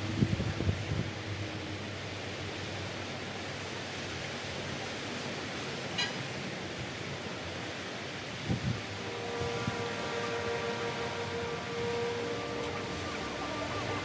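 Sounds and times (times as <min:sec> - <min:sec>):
sea waves breaking on sand: 0:05.1 - 0:14.0.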